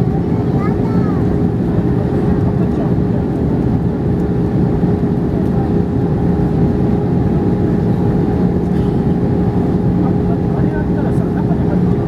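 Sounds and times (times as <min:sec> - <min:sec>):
airliner cabin engine rumble: 0:00.0 - 0:12.0
constant cabin hum: 0:00.0 - 0:12.0.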